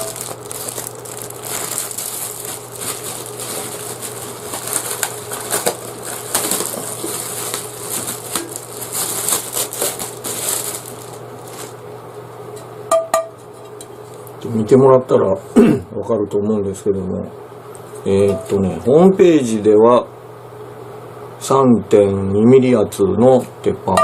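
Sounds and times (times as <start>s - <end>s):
small sharp clicks and crackles: 0.0s - 11.2s
packaging crinkling and rustling: 0.0s - 11.8s.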